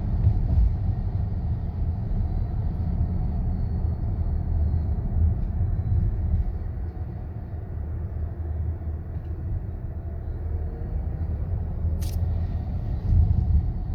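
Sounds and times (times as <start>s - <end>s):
sharp click: 12.0s - 12.2s.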